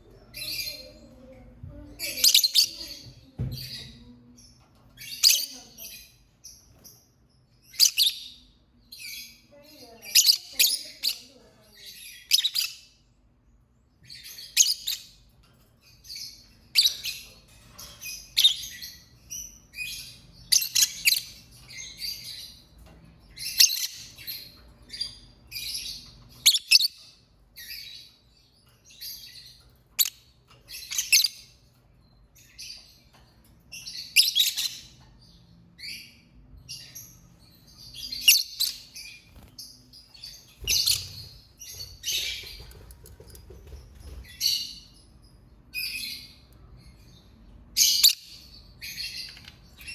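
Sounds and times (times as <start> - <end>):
lovebird chirping: 5.0 - 11.3, 18.0 - 33.1, 33.7 - 49.9.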